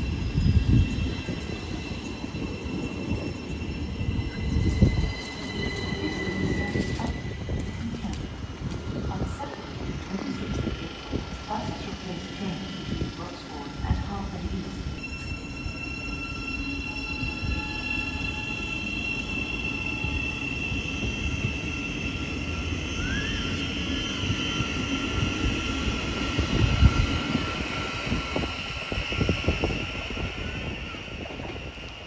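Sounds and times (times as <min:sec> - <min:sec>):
wheel and brake squeal: 0:00.0 - 0:07.4, 0:15.0 - 0:31.8
train rumble: 0:00.0 - 0:32.0.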